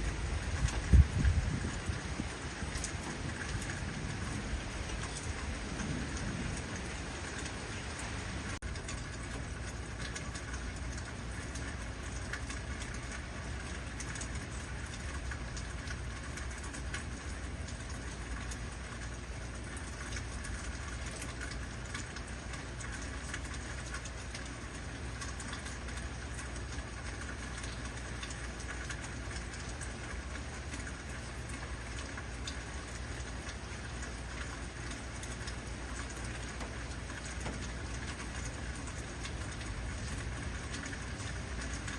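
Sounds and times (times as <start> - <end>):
heavy rain hissing: 0.0 - 8.6.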